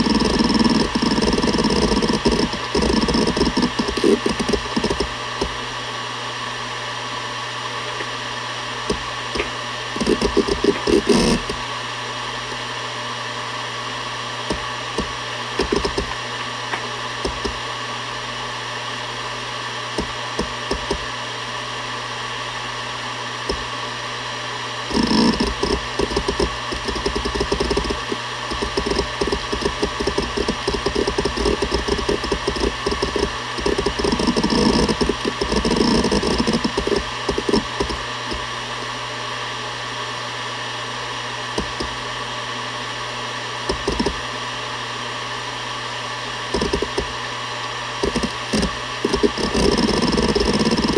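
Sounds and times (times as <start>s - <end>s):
hard drive head clicking: 0.0s - 5.6s, 8.8s - 11.7s, 14.5s - 17.7s, 20.0s - 21.1s, 23.5s - 23.7s, 24.9s - 38.5s, 41.6s - 42.0s, 43.7s - 44.2s, 46.5s - 47.2s, 48.0s - 50.9s
hard drive spinning hum: 0.0s - 50.9s.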